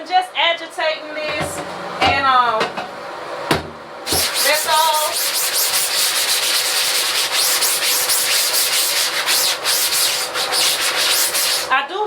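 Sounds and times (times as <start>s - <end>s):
rubbing strokes on wet screen: 4.1s - 11.8s.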